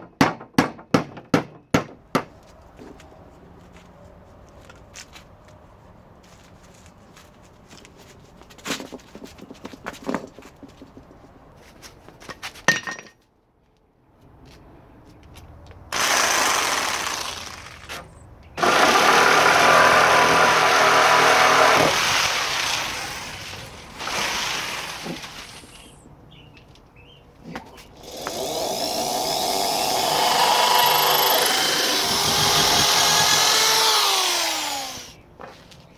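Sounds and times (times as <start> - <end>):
power tool cutting wood: 15.9 - 17.9, 18.6 - 25.9, 28.0 - 35.2.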